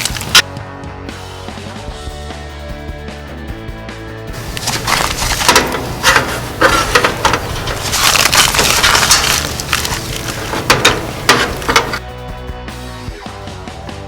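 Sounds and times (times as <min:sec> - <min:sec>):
tools and parts clicking and knocking: 0:00.0 - 0:00.4, 0:04.4 - 0:12.0.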